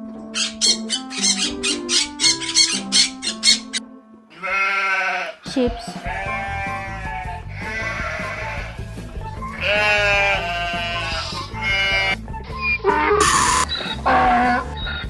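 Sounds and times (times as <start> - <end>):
background music: 0.0 - 15.0
sheep bleating: 4.3 - 8.9, 9.5 - 12.2, 14.0 - 14.7.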